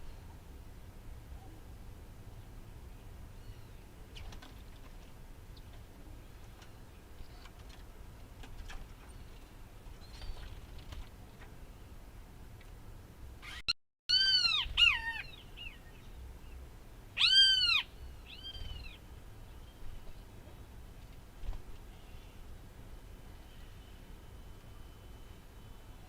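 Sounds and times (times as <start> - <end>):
low rural background hum: 0.0 - 26.0
bird chirps and calls: 13.4 - 16.6, 17.2 - 19.9.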